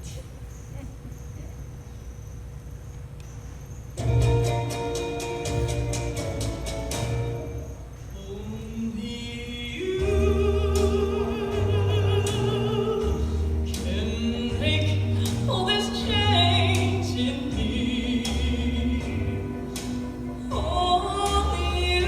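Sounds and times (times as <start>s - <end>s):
steady bass line: 4.0s - 7.7s, 10.0s - 22.0s
person singing with vibrato: 8.1s - 22.0s.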